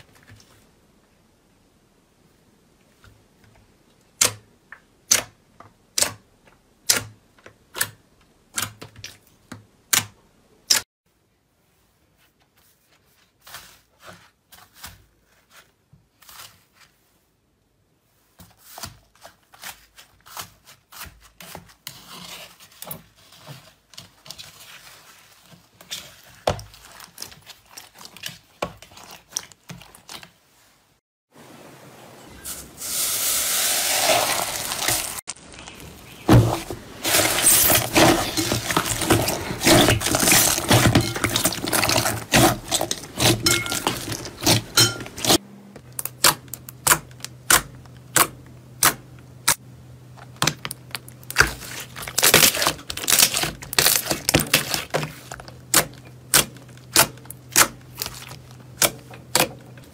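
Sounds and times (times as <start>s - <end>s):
slime clicking and squishing: 25.9s - 30.3s, 38.5s - 45.4s, 46.0s - 49.6s, 50.2s - 59.8s.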